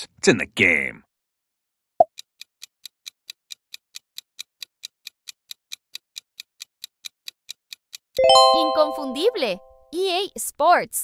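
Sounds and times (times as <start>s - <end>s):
clock ticking: 2.1s - 9.6s.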